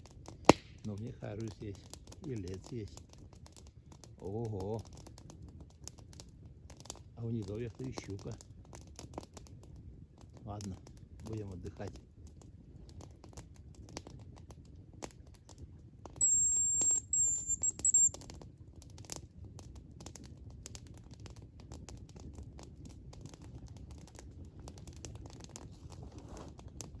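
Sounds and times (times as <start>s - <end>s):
campfire crackling and popping: 0.0s - 27.0s
thin high whistle: 16.2s - 18.1s.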